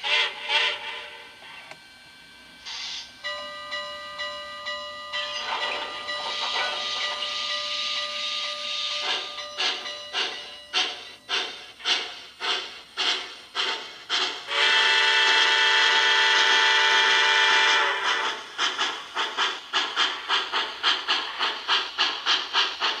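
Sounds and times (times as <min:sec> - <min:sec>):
steam exhaust chuffs: 0:02.4 - 0:23.0
steam whistle chord: 0:14.4 - 0:18.4.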